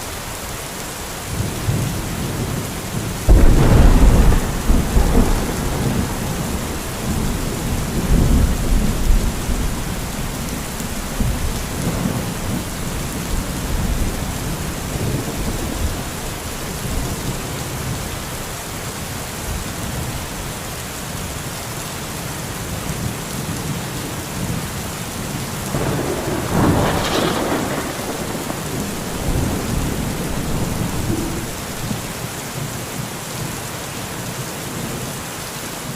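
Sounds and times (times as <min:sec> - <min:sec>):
steady rain: 0:00.0 - 0:35.9
rolling thunder: 0:01.3 - 0:18.3, 0:25.6 - 0:32.3.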